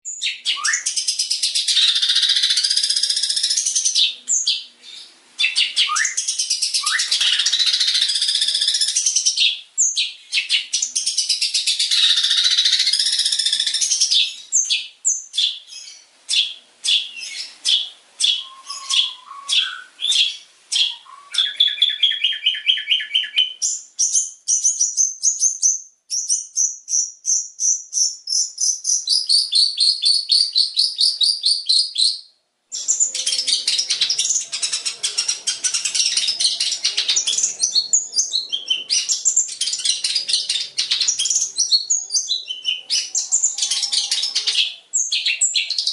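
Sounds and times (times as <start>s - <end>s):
bird warbling: 15.8s - 23.5s, 32.8s - 45.9s.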